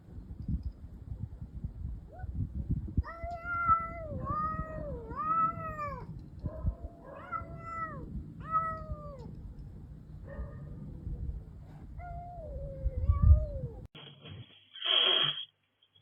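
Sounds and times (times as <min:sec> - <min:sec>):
cat yowling: 0:03.0 - 0:06.1, 0:06.9 - 0:09.3, 0:12.0 - 0:13.9.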